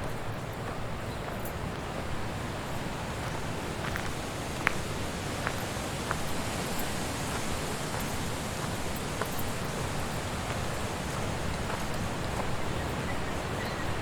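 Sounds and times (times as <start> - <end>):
wind blowing through trees: 0.0 - 14.0.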